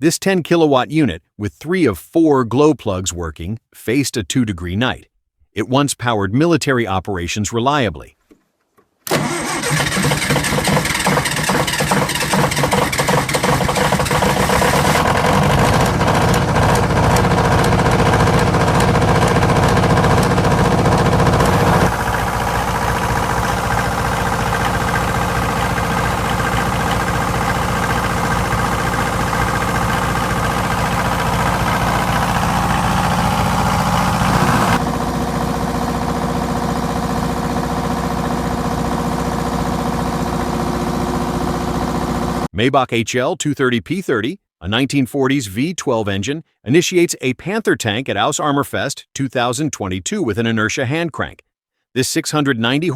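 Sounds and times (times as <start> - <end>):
diesel generator running: 9.1 - 42.5.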